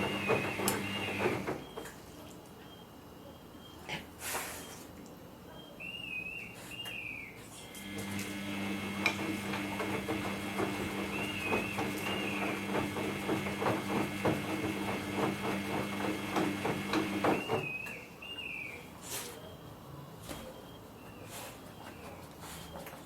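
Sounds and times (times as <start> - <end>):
washing machine motor hum: 0.0 - 1.9, 7.7 - 17.9
wet laundry tumbling knocks: 9.2 - 17.7.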